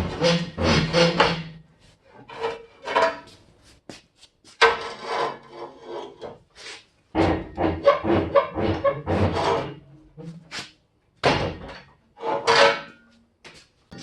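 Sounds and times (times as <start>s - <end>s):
metal scraping and rubbing: 0.0s - 3.8s, 4.5s - 10.8s, 12.2s - 13.1s.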